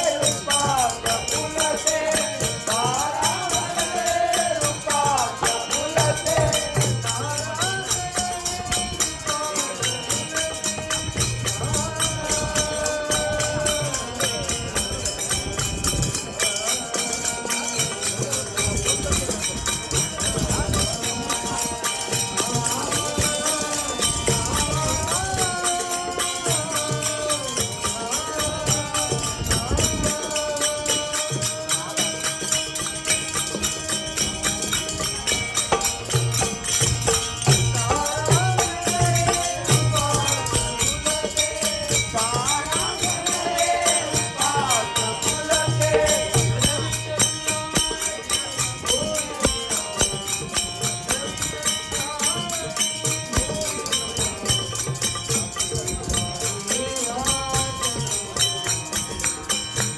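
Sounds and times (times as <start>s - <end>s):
harmonium: 0.0s - 59.9s
jingling percussion: 0.0s - 59.9s
person singing: 0.0s - 59.9s.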